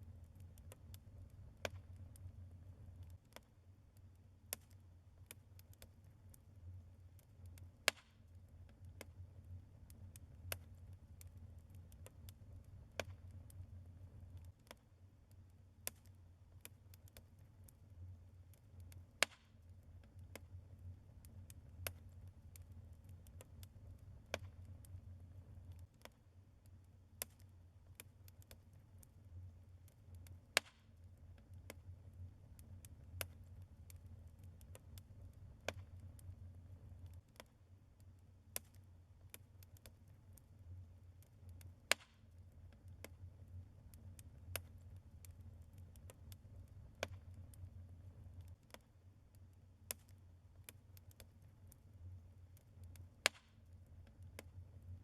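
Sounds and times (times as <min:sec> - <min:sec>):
low steady hum: 0:00.0 - 0:55.0
wood fire crackling: 0:00.0 - 0:55.0.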